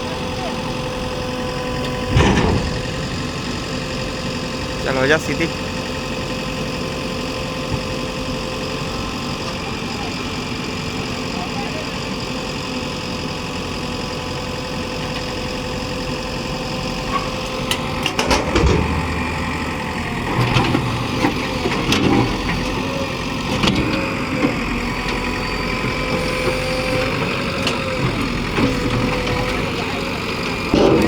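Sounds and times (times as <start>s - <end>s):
engine surging: 0.0s - 31.0s
metal knocks and clanks: 2.0s - 3.0s, 17.2s - 22.9s, 30.7s - 31.0s.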